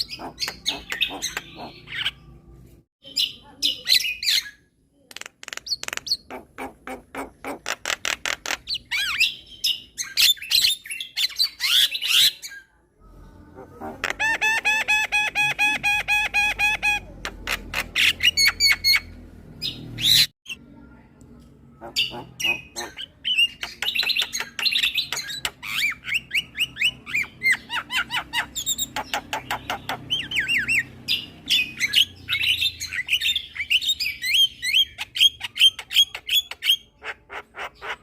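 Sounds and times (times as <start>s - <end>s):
bird chattering and clicking: 0.0s - 1.7s, 5.1s - 8.8s, 23.6s - 25.8s.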